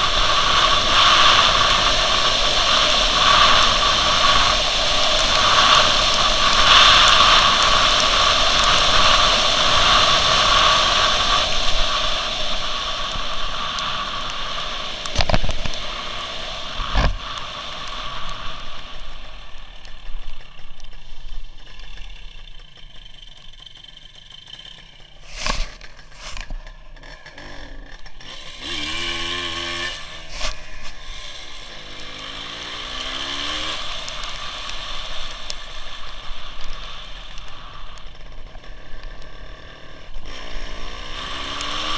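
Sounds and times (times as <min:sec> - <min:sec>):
wind noise: 0:00.0 - 0:20.4
motorcycle engine: 0:00.0 - 0:41.9.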